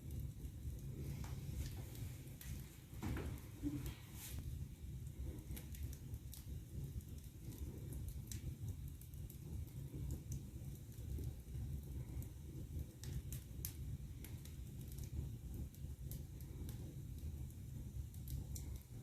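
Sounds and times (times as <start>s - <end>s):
fire burning in fireplace: 0.0s - 19.0s.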